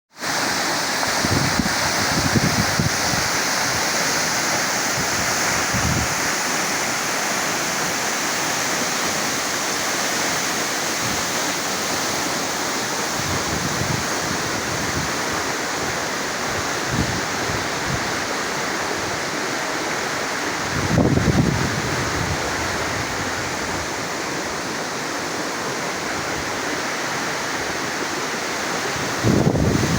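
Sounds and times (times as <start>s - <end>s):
waterfall rushing: 0.2s - 29.9s
wind buffeting microphone: 1.1s - 4.0s, 20.7s - 24.0s, 29.0s - 29.9s.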